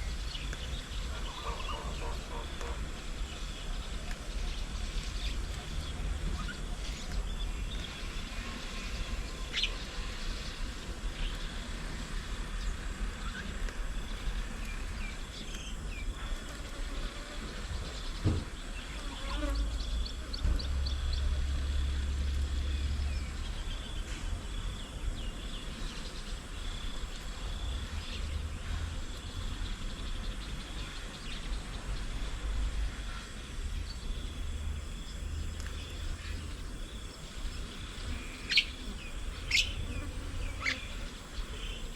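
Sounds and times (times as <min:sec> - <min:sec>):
bird chirps: 0:38.3 - 0:41.9.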